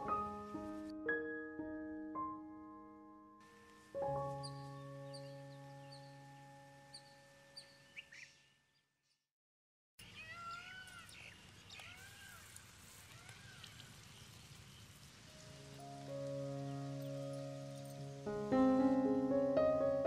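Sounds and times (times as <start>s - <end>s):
soft background music: 0.0s - 8.1s, 15.3s - 20.0s
birds chirping: 4.2s - 8.9s, 10.0s - 18.6s.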